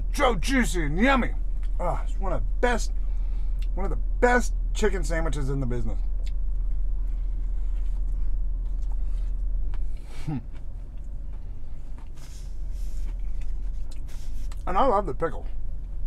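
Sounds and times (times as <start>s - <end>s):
car cabin rumble: 0.0s - 16.0s
chewing with soft clicks: 6.2s - 6.8s, 7.8s - 12.3s, 13.1s - 14.7s
person humming: 10.1s - 10.6s.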